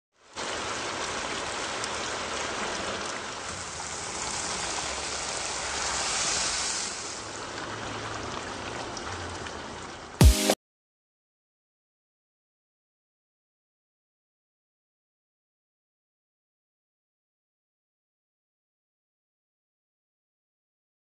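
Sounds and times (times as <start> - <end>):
food sizzling in a pan: 0.2 - 7.6.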